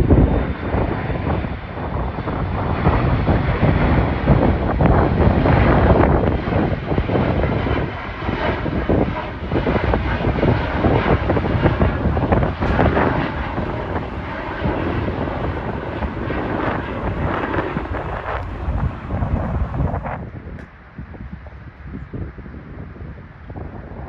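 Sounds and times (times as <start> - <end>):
jet engines at takeoff: 0.0 - 24.0.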